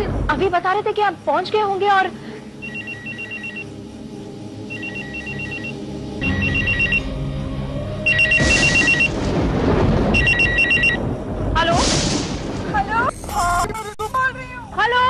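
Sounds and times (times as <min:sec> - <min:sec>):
telephone ringing two-tone trill: 0:02.6 - 0:03.7, 0:04.7 - 0:07.1, 0:08.1 - 0:09.1, 0:10.2 - 0:11.0.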